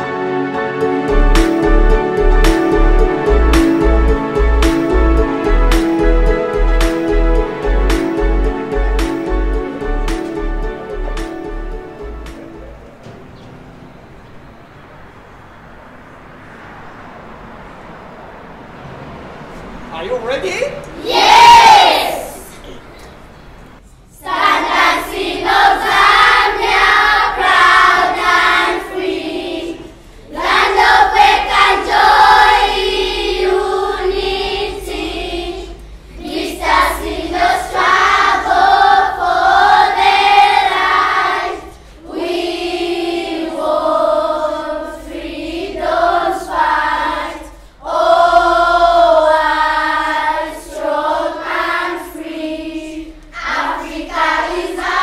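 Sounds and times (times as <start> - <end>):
children singing together: 24.1 - 55.0.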